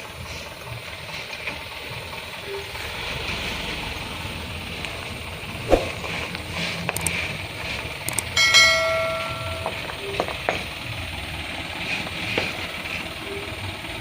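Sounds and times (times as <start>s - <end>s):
low engine rumble: 0.0s - 14.0s
sharp metallic knocks: 8.2s - 10.6s
ringing metal clang: 8.4s - 10.2s.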